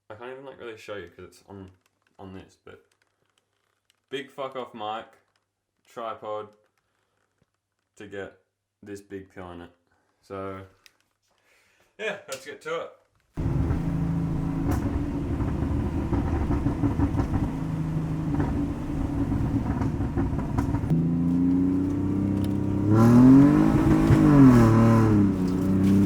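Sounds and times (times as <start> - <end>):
car engine revving: 13.4 - 26.0.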